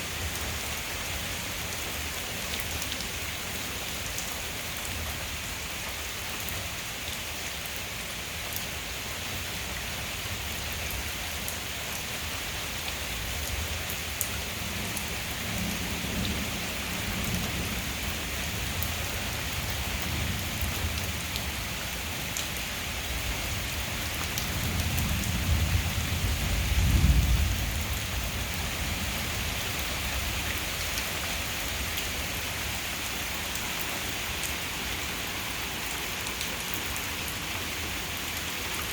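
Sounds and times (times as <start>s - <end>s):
heavy rain: 0.0s - 38.9s
low rumble of thunder: 14.6s - 21.1s, 24.4s - 30.4s.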